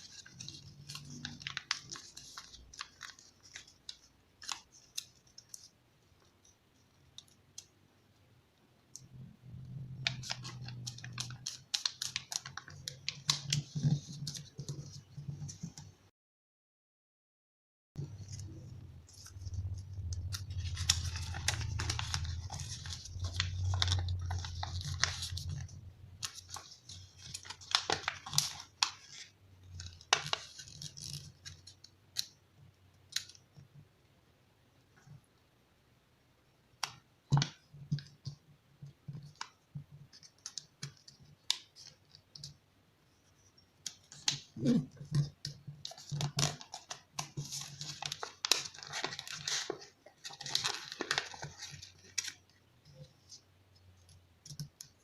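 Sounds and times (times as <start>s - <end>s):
paper being folded and creased: 0.0s - 7.7s, 9.7s - 15.9s, 18.0s - 32.4s, 39.2s - 53.4s.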